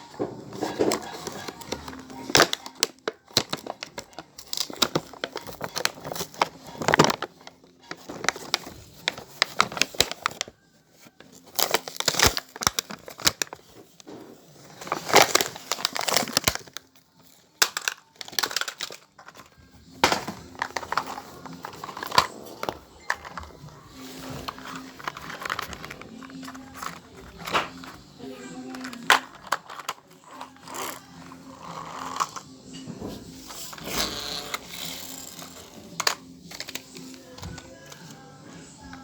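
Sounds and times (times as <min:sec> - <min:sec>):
packaging crinkling and tearing: 0:00.6 - 0:28.0.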